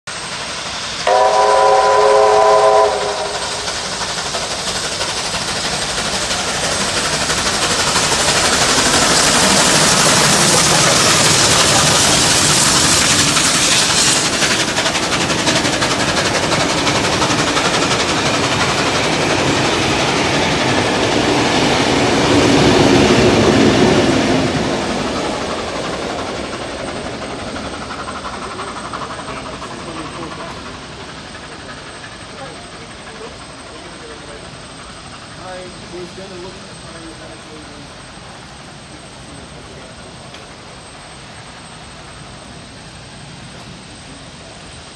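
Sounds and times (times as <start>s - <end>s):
diesel locomotive engine: 0.0s - 44.9s
rush of steam and wheels: 0.0s - 44.9s
steam locomotive whistle: 1.0s - 3.9s.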